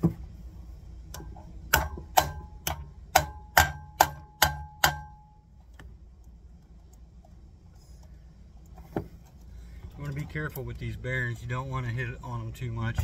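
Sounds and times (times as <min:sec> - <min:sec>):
hammer striking metal bearing: 0:01.1 - 0:05.4.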